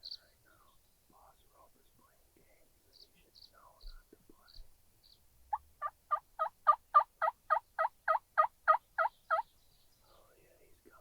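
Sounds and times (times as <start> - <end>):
turkey yelping: 5.5 - 9.4.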